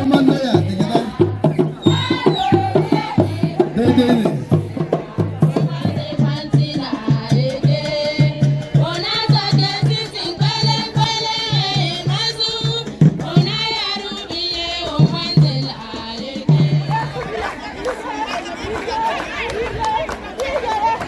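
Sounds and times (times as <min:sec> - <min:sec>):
low drum beat: 0:00.0 - 0:13.9
percussion: 0:00.0 - 0:21.0
voices singing: 0:00.0 - 0:21.0.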